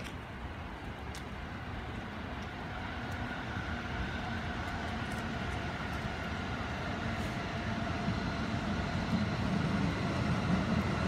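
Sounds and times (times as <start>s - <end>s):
train hum with held tones: 0.0s - 11.0s.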